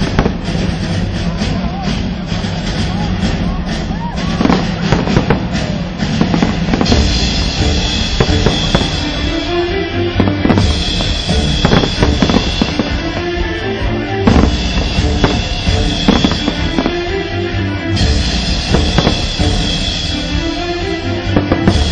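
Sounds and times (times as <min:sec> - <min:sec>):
fireworks banging: 0:00.0 - 0:02.5, 0:03.4 - 0:21.9
music with drum beat: 0:00.0 - 0:21.9.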